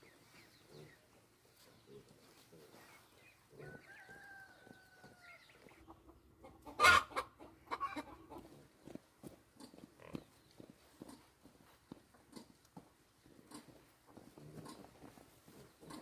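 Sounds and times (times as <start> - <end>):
chickens calling and clucking: 0.0 - 16.0.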